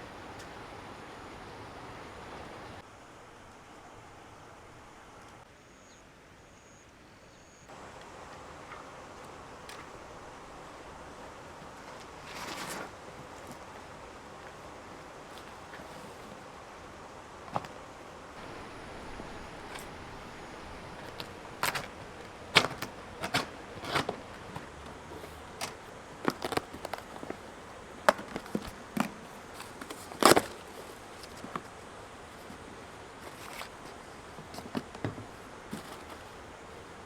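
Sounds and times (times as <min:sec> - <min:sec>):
camping gear clicks and knocks: 0:11.2 - 0:14.6, 0:17.4 - 0:36.8.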